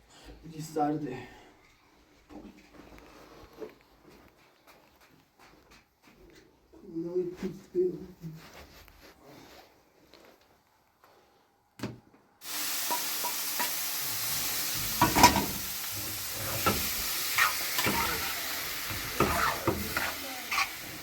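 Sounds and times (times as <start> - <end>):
steady hiss: 12.4 - 21.0.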